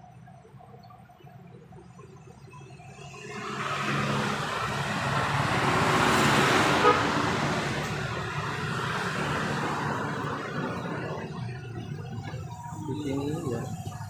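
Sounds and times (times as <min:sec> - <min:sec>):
road vehicle passing by: 0:02.8 - 0:14.0.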